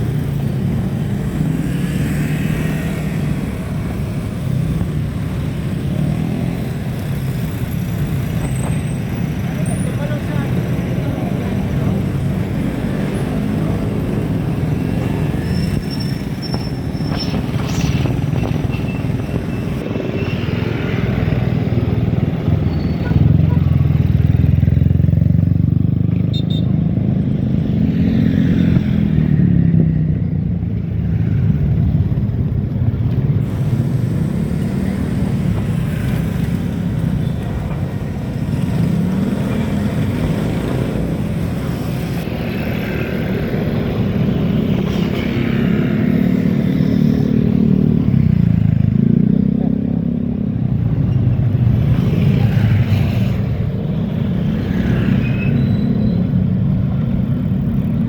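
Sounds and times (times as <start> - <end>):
road noise: 0.0 - 58.0.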